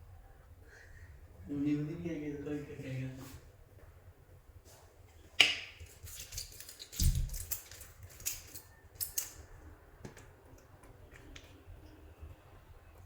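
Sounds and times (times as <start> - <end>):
clay clicking and crackling: 5.4 - 13.0.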